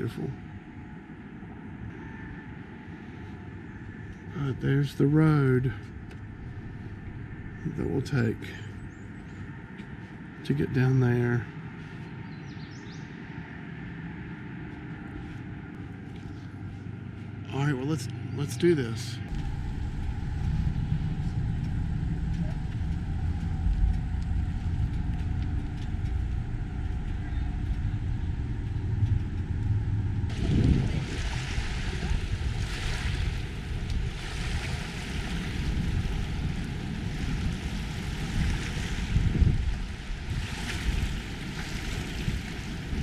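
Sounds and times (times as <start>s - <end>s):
wind rush on microphone: 0.0s - 18.3s, 19.2s - 43.0s
motorcycle engine rumble: 19.3s - 34.2s.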